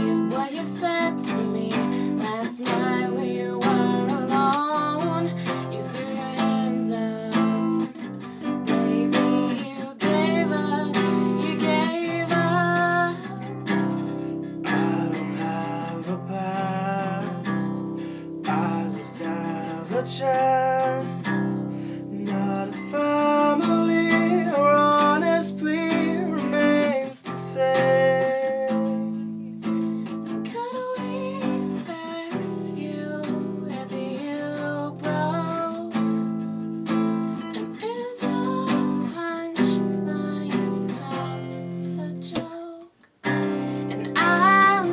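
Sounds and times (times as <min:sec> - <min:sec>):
acoustic guitar strumming: 0:00.0 - 0:44.9.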